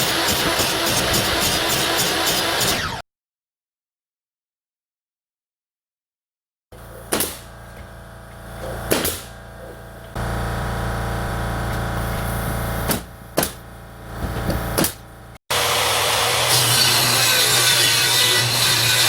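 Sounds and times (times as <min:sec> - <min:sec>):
pneumatic nail gun shots: 0:07.1 - 0:07.5, 0:08.8 - 0:09.4, 0:12.8 - 0:13.6, 0:14.7 - 0:15.1.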